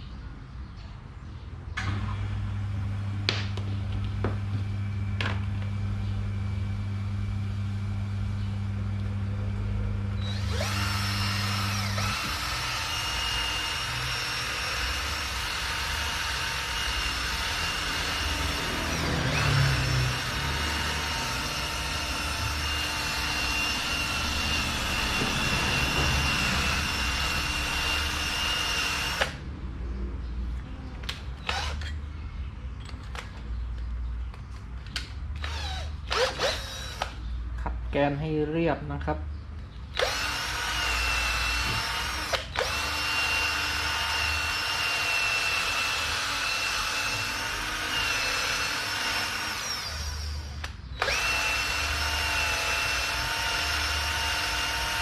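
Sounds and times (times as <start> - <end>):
low electrical hum: 0.0 - 55.0
power drill whining: 10.2 - 29.4, 31.4 - 32.0, 35.4 - 37.2, 39.9 - 55.0.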